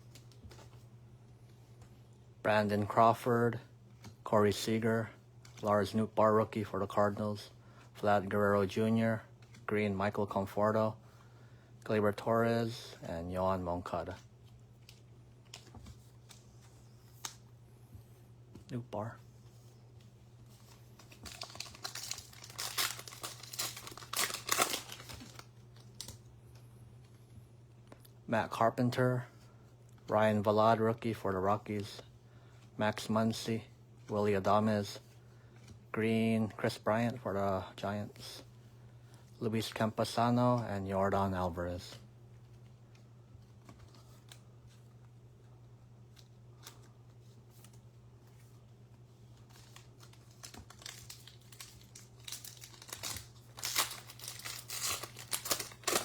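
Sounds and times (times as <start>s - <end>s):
low electrical hum: 0.0s - 56.0s
trading cards clicking and rustling: 20.5s - 26.2s, 49.2s - 56.0s
wrapper tearing and crinkling: 20.6s - 26.2s, 49.4s - 56.0s.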